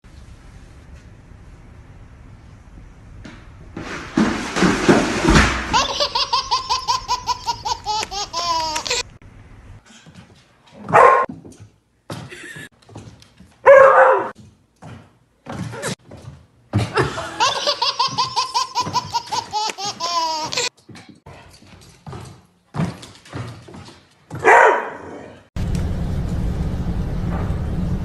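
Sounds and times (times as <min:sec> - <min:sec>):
person laughing: 0:05.7 - 0:09.1, 0:12.3 - 0:12.7, 0:16.8 - 0:20.7
dog barking: 0:10.9 - 0:11.3, 0:13.6 - 0:14.3, 0:24.4 - 0:25.2.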